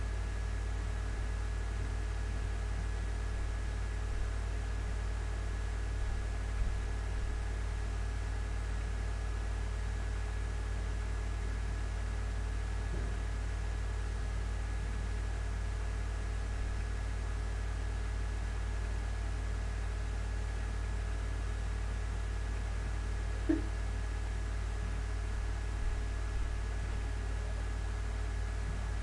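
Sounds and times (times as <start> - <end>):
low hum: 22.6 - 29.0.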